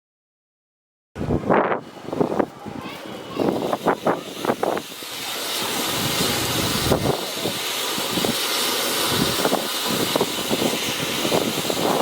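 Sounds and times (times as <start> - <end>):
firework fountain hissing: 1.8 - 12.0.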